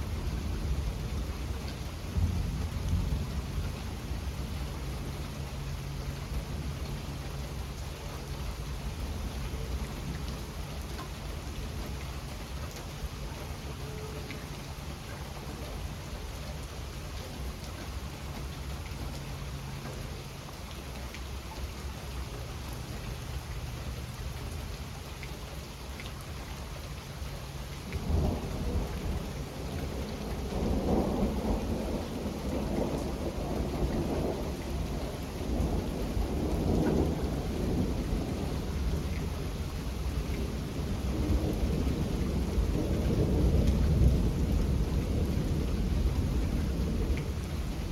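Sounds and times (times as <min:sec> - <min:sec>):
thunder rumbling: 0:00.0 - 0:07.2, 0:27.9 - 0:47.9
steady rain: 0:00.0 - 0:47.9.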